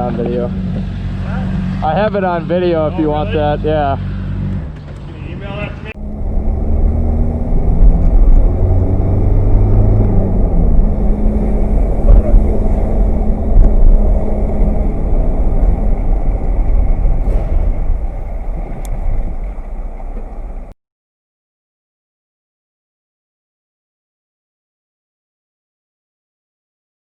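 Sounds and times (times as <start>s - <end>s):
vehicle engine and road noise: 0.0s - 20.8s.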